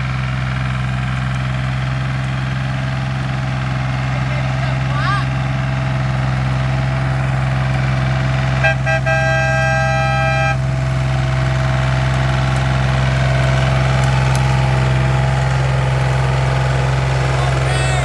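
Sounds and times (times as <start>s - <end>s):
diesel tractor engine humming: 0.0s - 18.0s
vehicle horn toots and blast: 8.6s - 10.7s.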